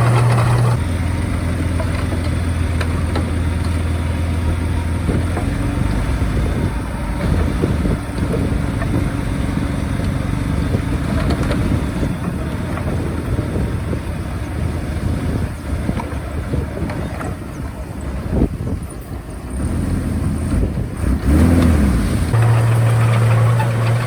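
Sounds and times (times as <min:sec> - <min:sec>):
bulldozer diesel engine running: 0:00.0 - 0:24.0
knocks and rattles: 0:22.3 - 0:24.0.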